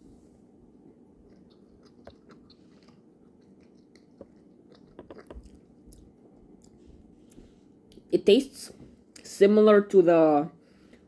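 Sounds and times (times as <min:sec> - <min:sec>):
chewing gummy candy: 0:00.8 - 0:06.9.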